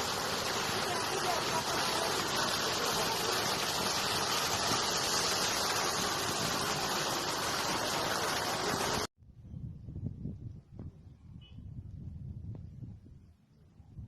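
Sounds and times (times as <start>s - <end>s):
river water rushing: 0.0s - 9.1s.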